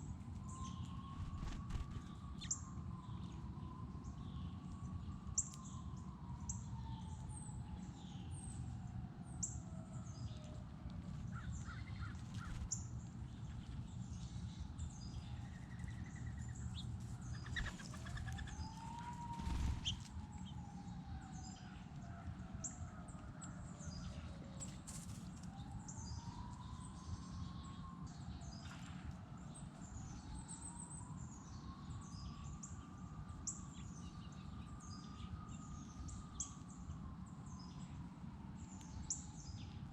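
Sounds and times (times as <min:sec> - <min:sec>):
birds chirping: 0:15.0 - 0:20.5.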